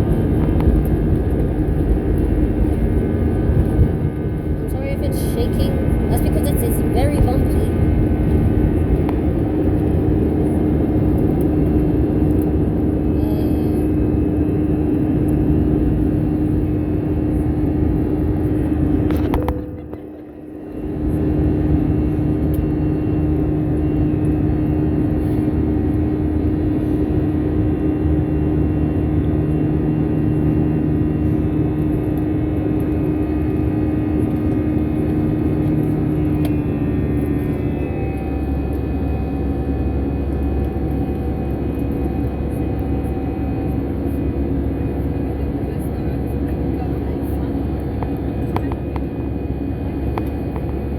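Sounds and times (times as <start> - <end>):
jet engines rumbling at high thrust: 0.0 - 50.9.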